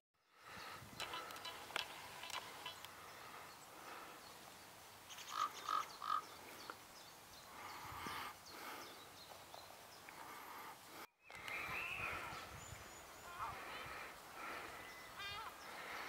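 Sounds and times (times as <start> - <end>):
bird giving harsh calls: 1.0 - 2.9, 5.1 - 6.4.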